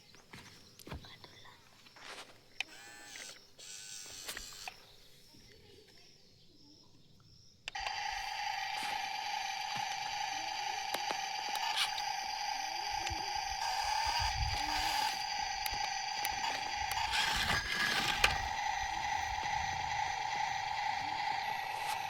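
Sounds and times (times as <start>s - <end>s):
toy electric motor whining: 2.6s - 4.9s, 7.7s - 22.0s.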